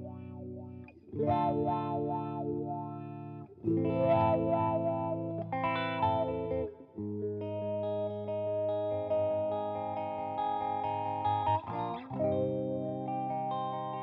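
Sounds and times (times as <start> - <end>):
electric guitar chords ringing: 0.0 - 14.0.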